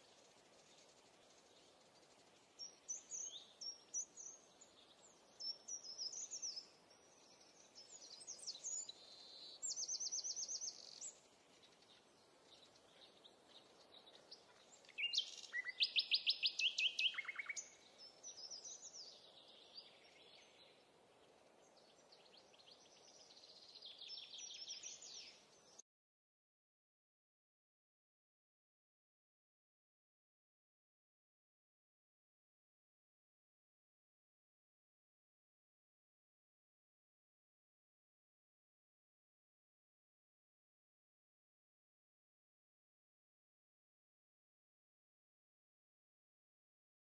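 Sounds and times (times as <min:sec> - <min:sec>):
birds chirping: 0:00.0 - 0:25.8
faint steady hiss: 0:00.0 - 0:25.8.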